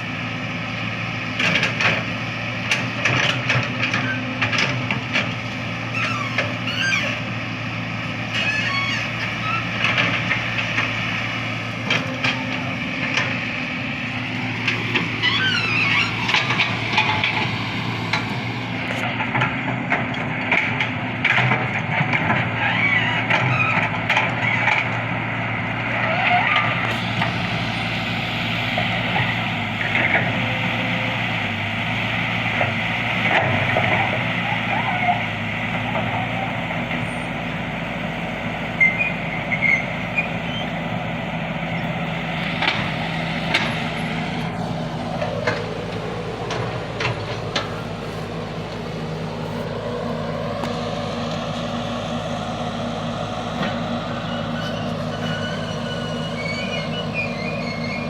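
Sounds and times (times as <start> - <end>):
excavator diesel engine running: 0.0 - 58.0
high sliding squeals: 5.8 - 7.3, 8.2 - 9.9, 15.0 - 16.8, 38.6 - 40.8, 54.0 - 58.0
knocks and clanks: 44.4 - 48.9.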